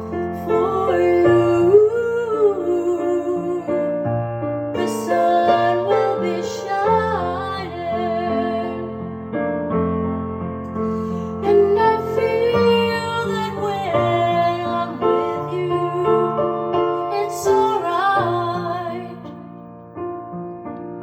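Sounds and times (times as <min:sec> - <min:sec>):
piano ballad: 0:00.0 - 0:21.0.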